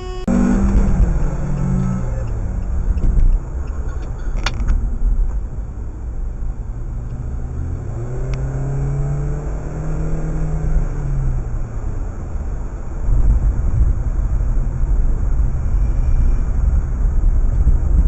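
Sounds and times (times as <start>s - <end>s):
car engine running: 0.0s - 9.7s
road rumble: 0.0s - 18.0s.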